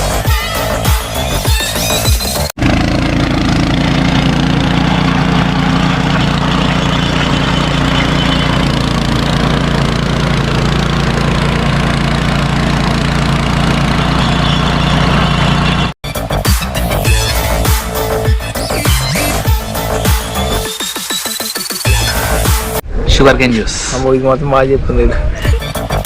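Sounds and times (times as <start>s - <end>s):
engine humming steadily: 0.0s - 16.0s.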